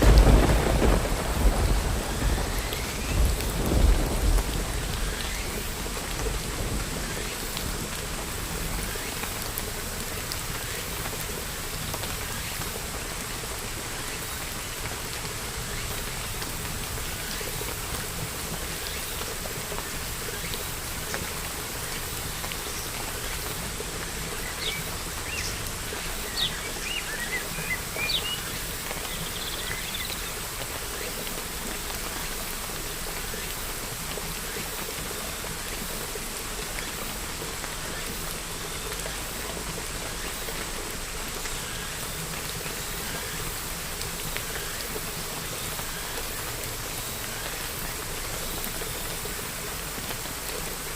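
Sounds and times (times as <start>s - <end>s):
thunder rumbling: 0.0s - 8.9s
rain falling: 0.0s - 50.9s.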